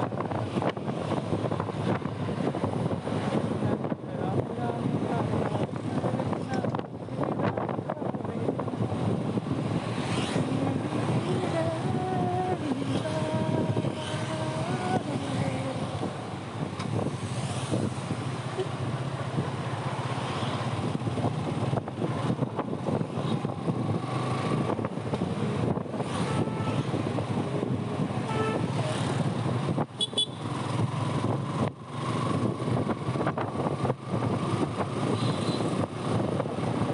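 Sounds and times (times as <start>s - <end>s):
other vehicles in traffic: 0.0s - 36.9s
wind noise: 0.0s - 36.9s.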